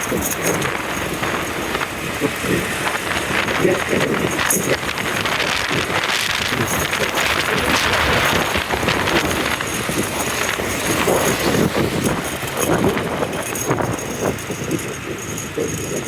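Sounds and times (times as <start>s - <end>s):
motorbike traffic rumble: 0.0s - 16.0s
wind buffeting microphone: 0.0s - 16.0s.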